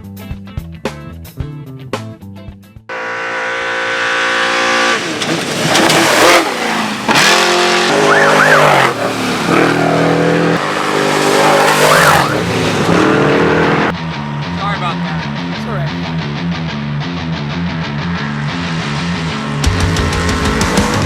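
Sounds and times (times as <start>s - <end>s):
tyres skidding in dirt: 2.9s - 16.4s
race vehicle engines at full throttle: 2.9s - 21.0s.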